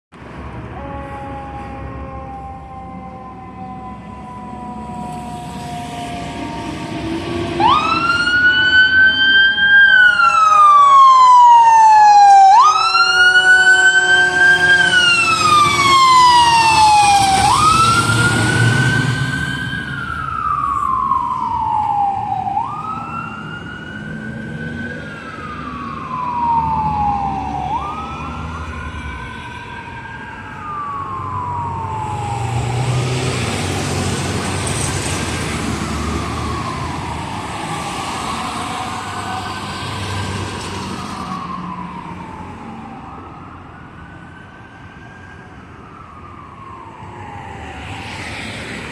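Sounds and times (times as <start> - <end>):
truck engine rumble: 0.2 - 28.8
fire engine siren wailing: 0.2 - 48.9.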